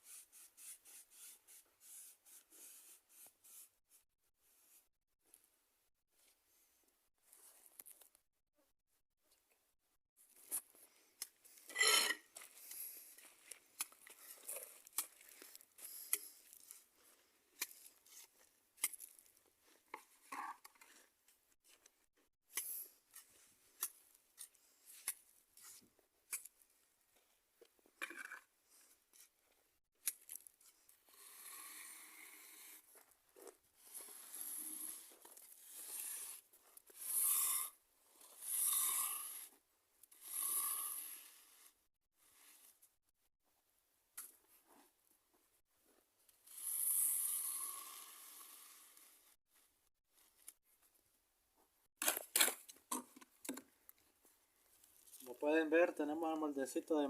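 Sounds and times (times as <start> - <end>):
trowel scraping wet cement: 11.6 - 12.3, 33.9 - 39.5.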